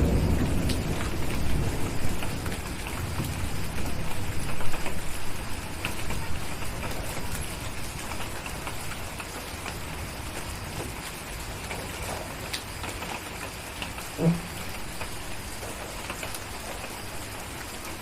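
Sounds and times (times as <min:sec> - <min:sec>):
drip ticks and crackles: 0:00.0 - 0:18.0
rain falling: 0:00.0 - 0:18.0
low thump: 0:14.2 - 0:14.6.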